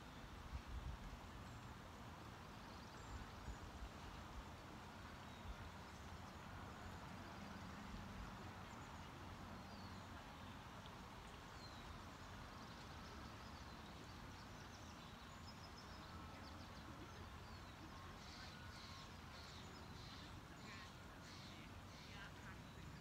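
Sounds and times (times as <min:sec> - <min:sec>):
birds chirping: 0:11.2 - 0:23.0.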